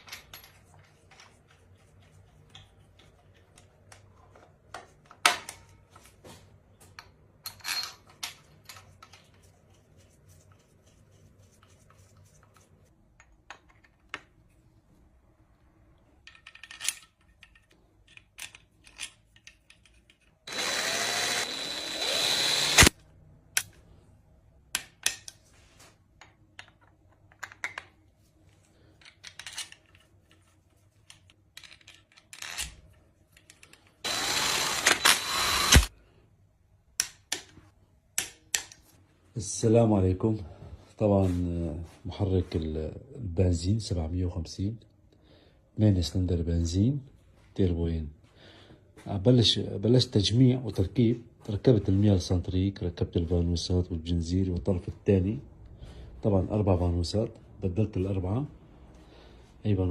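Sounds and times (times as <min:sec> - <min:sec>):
metal tools clicking and knocking: 0:16.2 - 0:20.4
power drill whirring: 0:20.5 - 0:23.0, 0:34.0 - 0:35.9.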